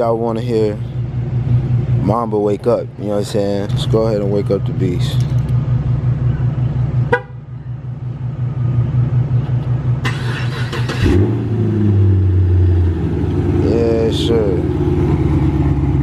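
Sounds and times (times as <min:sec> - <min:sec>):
engine deep high idle: 0:00.0 - 0:11.1, 0:12.3 - 0:16.0
car horn chirp: 0:07.0 - 0:07.5
engine cranking: 0:10.0 - 0:11.3.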